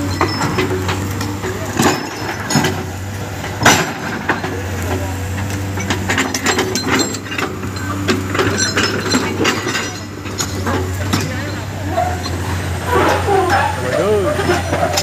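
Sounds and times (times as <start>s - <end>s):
excavator diesel engine running: 0.0s - 15.0s
stone and metal clanking: 0.0s - 15.0s.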